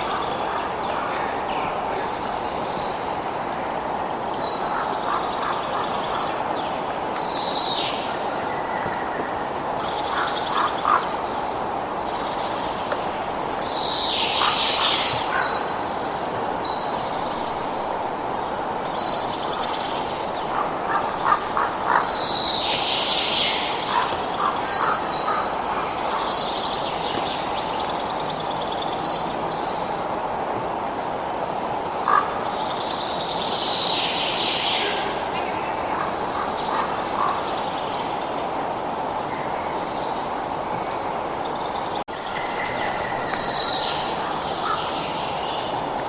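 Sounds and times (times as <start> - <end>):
birds calling: 32.0 - 40.4, 41.2 - 45.9.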